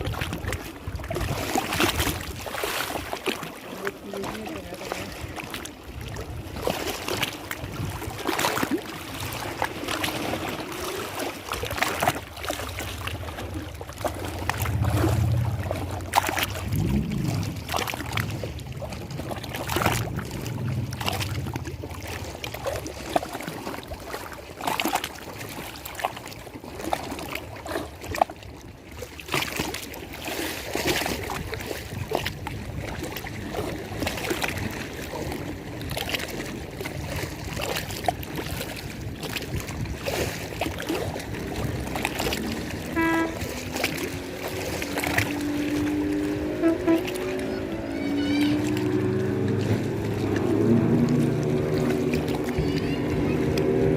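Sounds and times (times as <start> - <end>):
water lapping and splashing: 0.0 - 53.9
low hum: 13.2 - 22.3.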